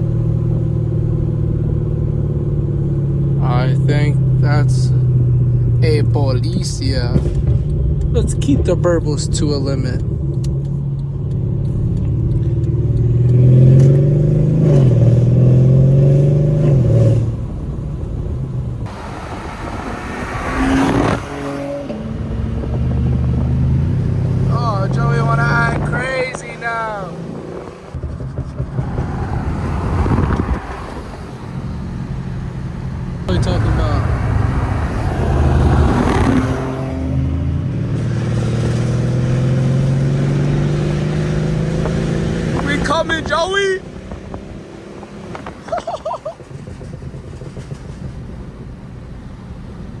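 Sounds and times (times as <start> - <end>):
car engine accelerating: 0.0 - 50.0
rushing sound: 18.8 - 22.3, 24.3 - 39.0.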